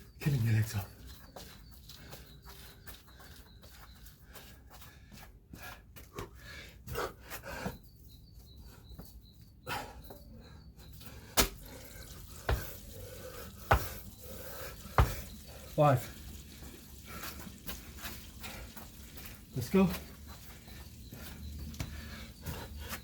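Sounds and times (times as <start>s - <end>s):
feet scuffing and tapping: 0.5s - 7.8s, 12.5s - 12.8s, 13.6s - 14.1s, 15.0s - 15.3s, 17.3s - 23.0s
feet landing with thuds: 11.3s - 11.7s, 12.5s - 12.8s, 13.6s - 14.0s, 14.9s - 15.3s.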